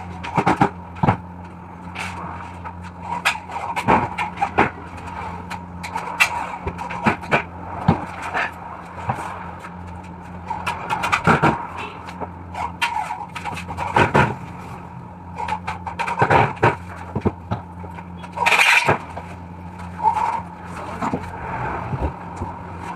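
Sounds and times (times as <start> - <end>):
steady low hum: 0.0 - 22.9
knocks and scrapes: 0.1 - 22.9
loud scraping rush: 18.3 - 22.9.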